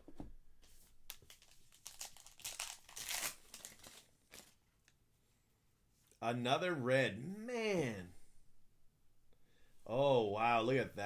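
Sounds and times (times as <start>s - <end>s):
card pack wrapper crinkling: 1.1s - 4.6s.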